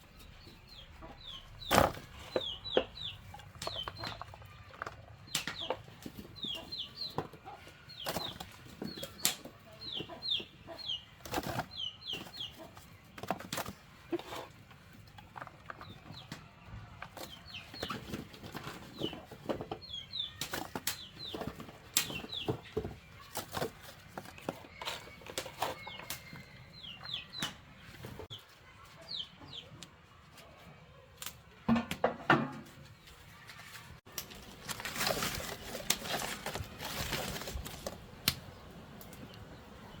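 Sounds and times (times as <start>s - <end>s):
chicks peeping: 0.0s - 31.1s.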